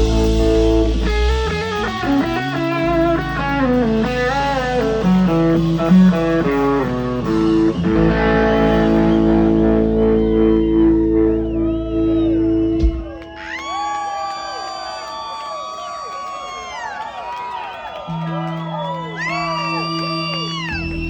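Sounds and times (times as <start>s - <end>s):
bass guitar: 0.0s - 13.4s, 18.1s - 21.0s
electric guitar lead line: 0.0s - 13.6s, 18.1s - 21.0s.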